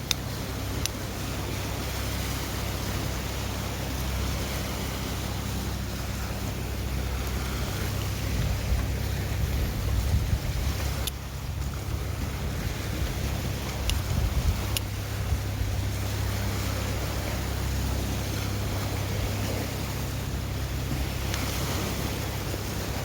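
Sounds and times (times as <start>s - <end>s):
sea surf: 0.0s - 23.0s
wind buffeting microphone: 0.0s - 23.0s.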